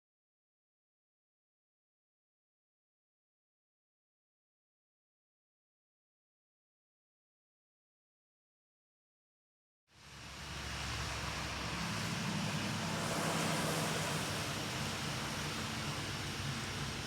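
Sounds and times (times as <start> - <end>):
broad rushing noise: 10.0 - 17.0
engine running: 10.0 - 17.0.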